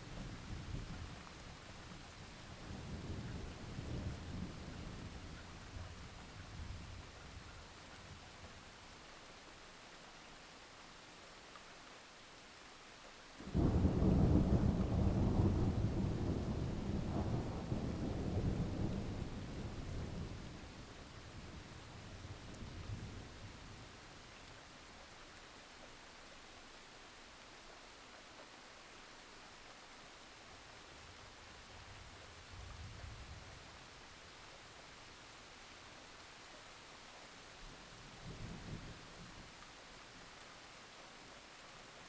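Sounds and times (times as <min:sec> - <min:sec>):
steady rain: 0:00.0 - 0:42.0
thunder rumbling: 0:13.5 - 0:20.5.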